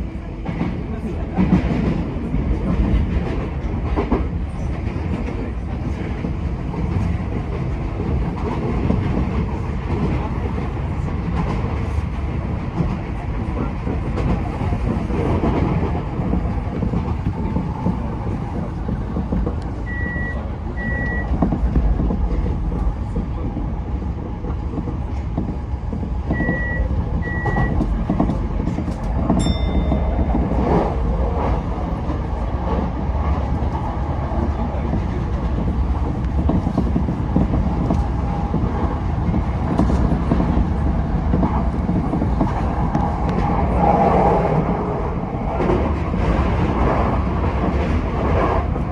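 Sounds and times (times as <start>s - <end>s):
train wheels rumbling on rails: 0.0s - 48.9s
short high beeps: 26.4s - 27.8s.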